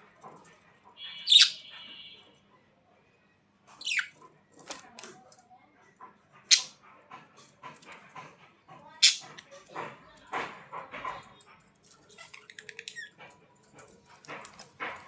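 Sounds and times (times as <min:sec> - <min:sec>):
ticking animal calls: 0:00.2 - 0:01.9, 0:06.4 - 0:09.9.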